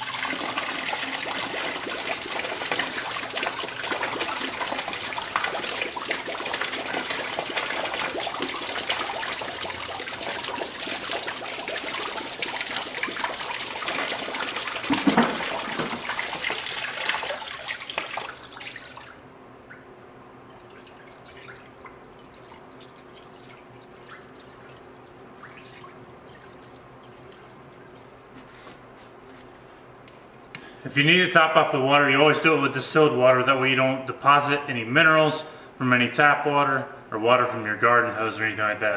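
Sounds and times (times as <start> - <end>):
liquid pouring: 0.0 - 19.2, 20.2 - 28.2.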